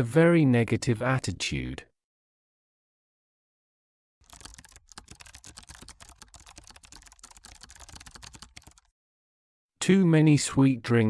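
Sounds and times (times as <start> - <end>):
fast typing on keyboard: 4.2 - 8.9.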